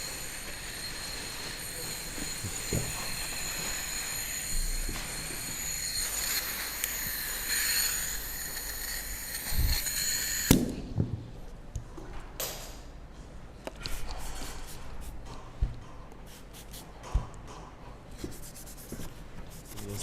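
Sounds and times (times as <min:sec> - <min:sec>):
motorised tool whining: 0:00.0 - 0:10.6.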